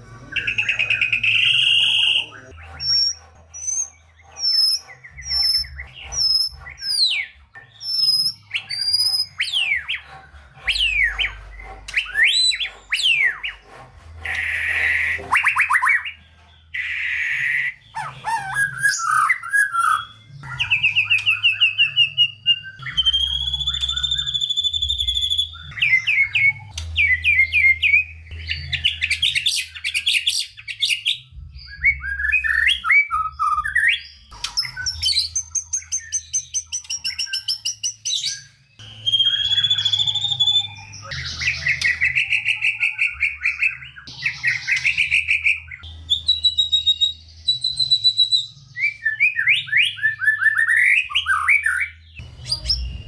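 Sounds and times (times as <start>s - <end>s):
songbird singing varied song: 16.8s - 53.0s.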